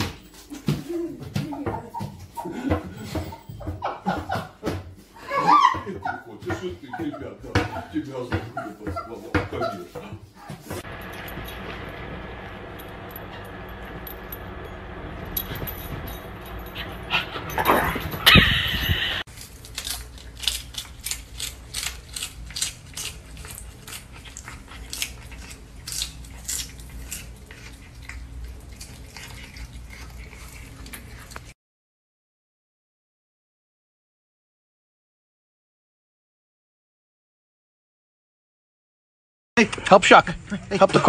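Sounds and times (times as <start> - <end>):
small dog whining: 17.2 - 19.2
cat crunching lettuce: 19.3 - 31.6.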